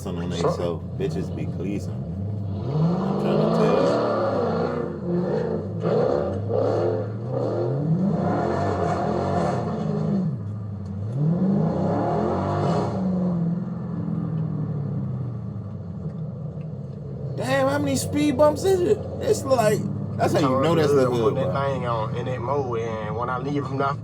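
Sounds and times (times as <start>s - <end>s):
car engine revving: 0.0s - 16.1s, 17.4s - 22.8s.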